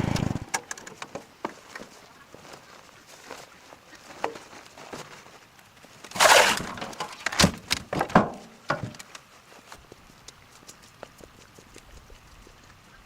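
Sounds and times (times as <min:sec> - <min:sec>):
scraping rush: 0:06.1 - 0:06.8.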